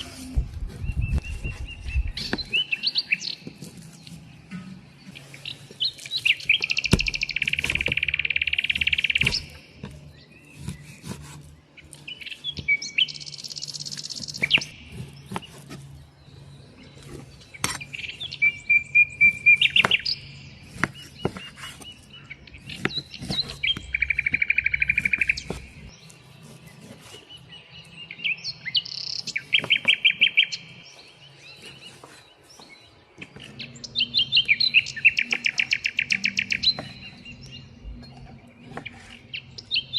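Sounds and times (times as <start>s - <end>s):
songbirds trilling: 0.0s - 39.9s.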